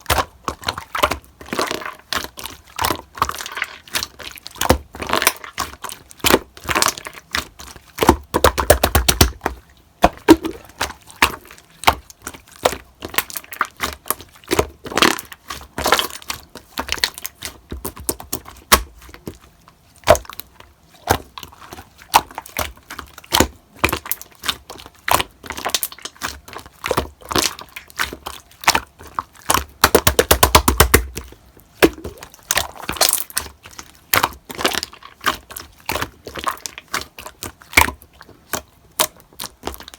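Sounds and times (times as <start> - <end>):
slime clicking and popping: 8.0 - 12.1, 29.4 - 33.5.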